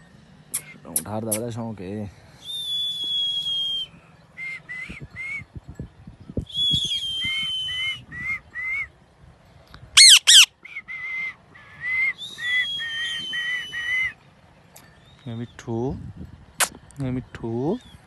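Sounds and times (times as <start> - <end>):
parrot chirping: 10.0 - 10.5
parrot squawking: 10.0 - 10.5
parrot whistling: 10.0 - 11.2, 11.8 - 14.1.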